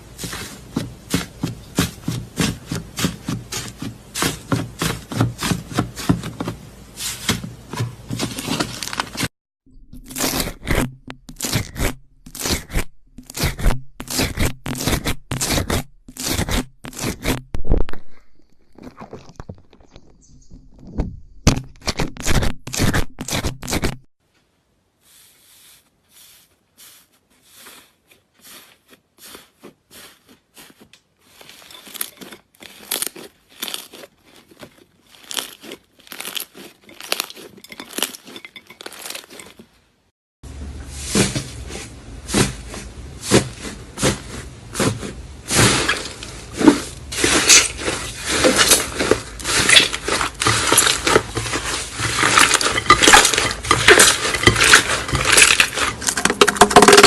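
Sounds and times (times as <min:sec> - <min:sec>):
slime crackling and popping: 0:31.4 - 0:39.5, 0:47.2 - 0:57.0.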